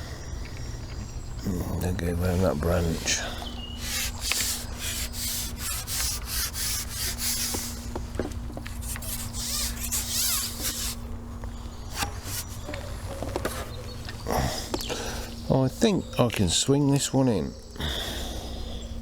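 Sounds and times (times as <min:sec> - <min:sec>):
faint steady hum: 0:00.0 - 0:19.0
fishing pole rubbing and scraping: 0:03.8 - 0:07.8, 0:08.6 - 0:11.0, 0:11.9 - 0:12.7.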